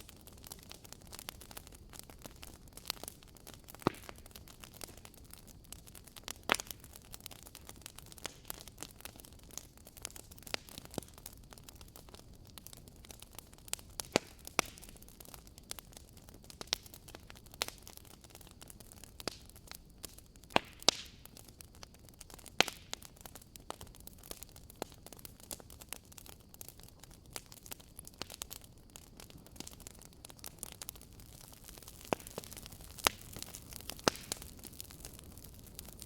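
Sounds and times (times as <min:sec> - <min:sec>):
wood fire crackling: 0:00.0 - 0:36.0.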